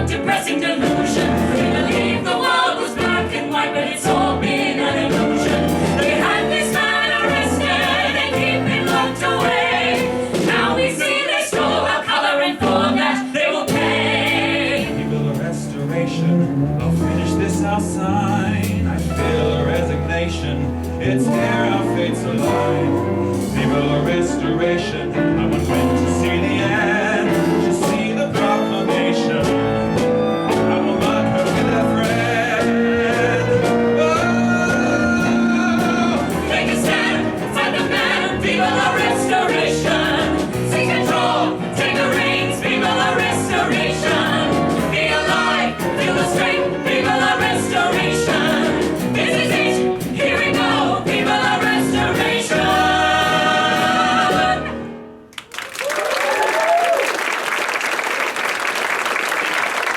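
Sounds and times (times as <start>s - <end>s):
live band playing: 0.0s - 54.8s
group of singers: 0.0s - 55.3s.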